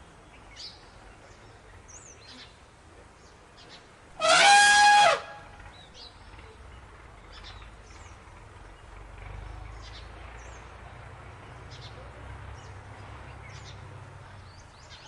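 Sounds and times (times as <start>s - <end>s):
low steady rumble: 2.9s - 15.0s
elephant trumpeting: 4.2s - 5.5s.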